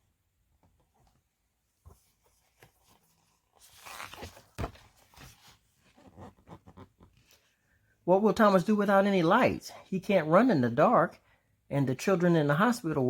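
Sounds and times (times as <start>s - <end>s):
book pages turning: 1.8s - 7.3s.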